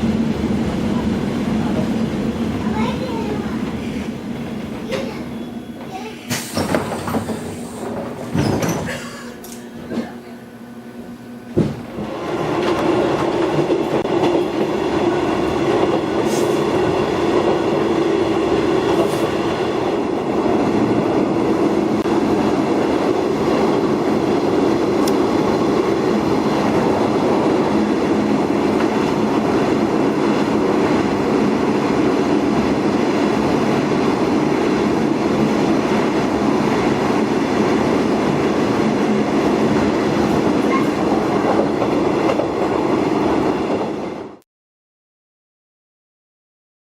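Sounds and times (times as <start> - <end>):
tram wheels rumbling: 0.0 - 44.4.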